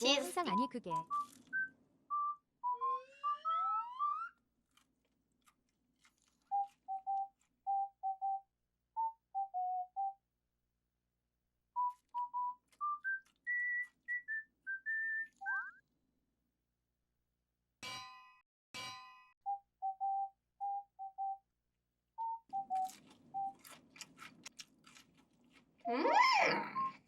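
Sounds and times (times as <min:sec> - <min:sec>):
person whistling a tune: 0:00.5 - 0:03.8, 0:06.5 - 0:10.2, 0:11.8 - 0:15.8, 0:19.5 - 0:21.4, 0:22.2 - 0:22.8.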